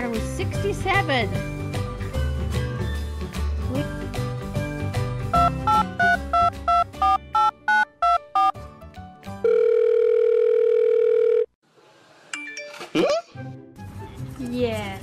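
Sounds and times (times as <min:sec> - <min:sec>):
music: 0:00.0 - 0:09.8, 0:12.3 - 0:15.0
steady phone tone: 0:05.4 - 0:08.5, 0:09.4 - 0:11.5
telephone keypad dialing beeps: 0:05.4 - 0:08.5.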